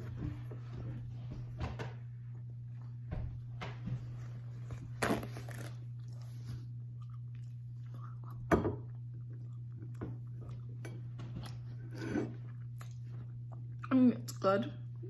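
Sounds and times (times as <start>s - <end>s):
low steady hum: 0.0s - 15.0s
person chewing: 5.0s - 13.9s.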